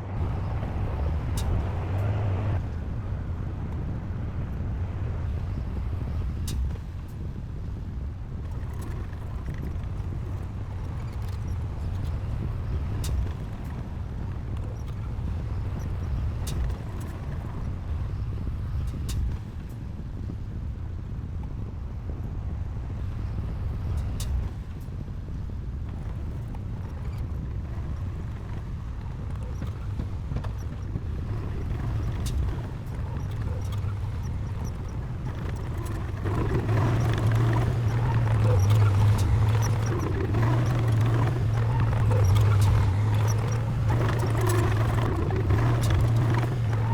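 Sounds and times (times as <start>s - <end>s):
diesel engine running: 0.0s - 2.7s, 26.0s - 46.9s.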